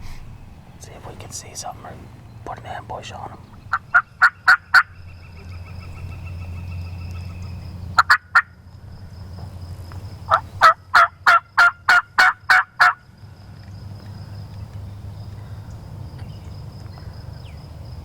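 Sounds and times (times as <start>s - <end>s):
wild turkey yelping: 3.1s - 8.5s, 10.3s - 13.0s.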